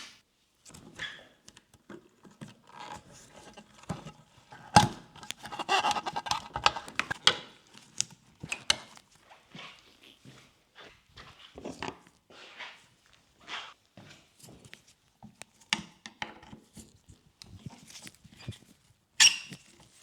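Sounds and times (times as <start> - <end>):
tools handled with clicks and scrapes: 2.7 - 8.9.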